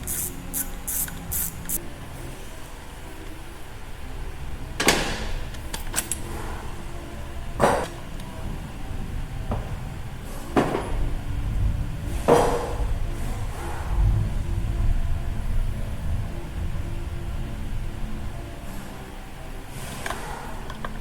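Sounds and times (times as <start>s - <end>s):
low steady rumble: 5.4s - 19.7s.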